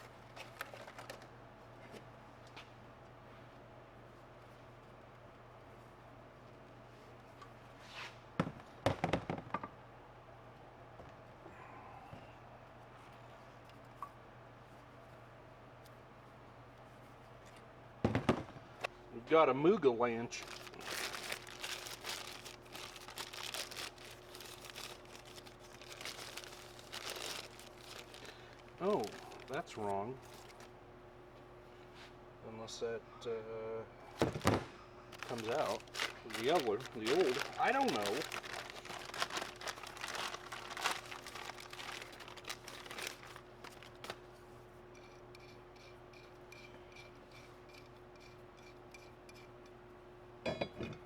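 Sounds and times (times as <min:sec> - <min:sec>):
rustling and crinkling: 0:00.0 - 0:02.8, 0:20.3 - 0:30.7, 0:34.2 - 0:44.5
steady low hum: 0:09.7 - 0:51.0.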